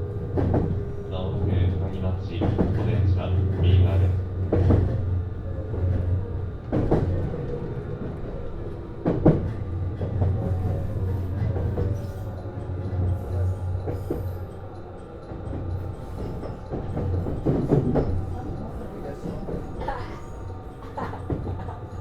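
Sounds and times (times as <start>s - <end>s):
train interior hum: 0.0s - 22.0s.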